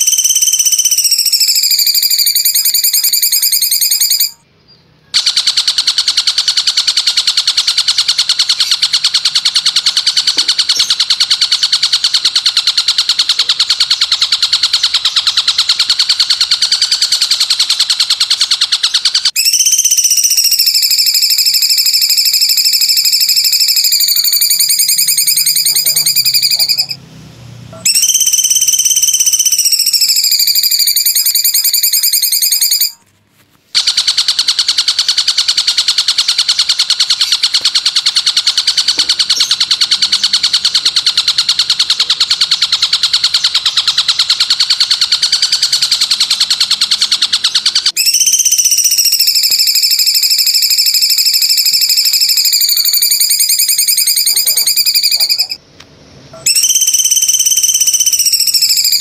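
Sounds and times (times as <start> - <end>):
bird rattling trill: 0.0 - 4.4, 5.1 - 27.0, 27.8 - 33.0, 33.7 - 55.6, 56.4 - 59.0
songbird whistled notes: 0.0 - 5.2, 13.0 - 27.0, 27.8 - 33.0, 36.1 - 55.6, 56.4 - 59.0.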